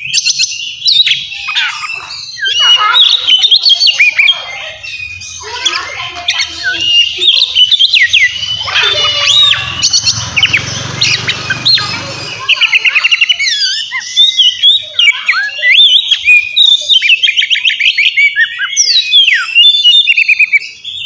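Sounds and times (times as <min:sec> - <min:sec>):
bird singing: 0:00.0 - 0:21.0.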